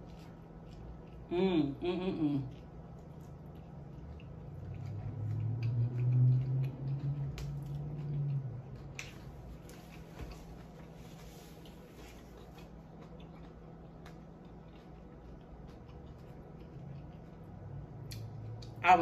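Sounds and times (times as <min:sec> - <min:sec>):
woman chewing: 0:00.0 - 0:18.7
woman humming mmm: 0:01.3 - 0:02.6.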